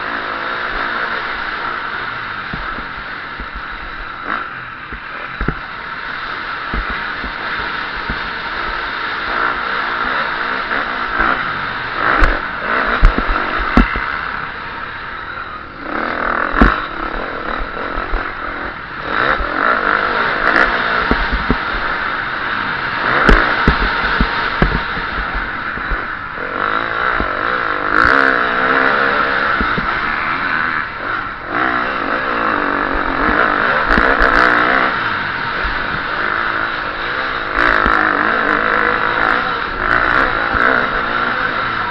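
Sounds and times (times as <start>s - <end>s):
motocross engine revving: 0.0s - 41.9s
bike knocking on bumps and landings: 12.0s - 14.1s, 23.1s - 26.1s.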